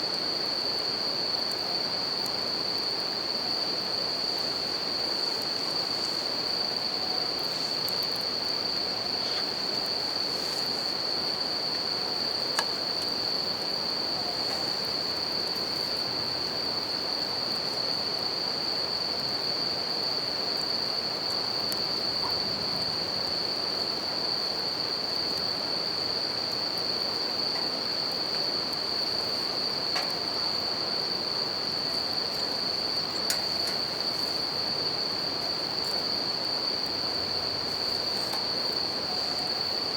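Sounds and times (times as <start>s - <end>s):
crickets chirping: 0.0s - 39.9s
campfire crackling: 4.1s - 18.0s, 26.8s - 36.1s.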